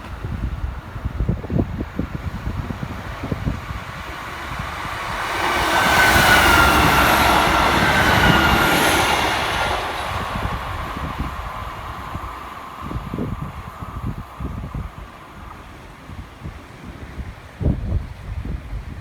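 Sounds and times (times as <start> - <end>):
train passing by: 0.0 - 17.5
wind buffeting microphone: 0.0 - 19.0.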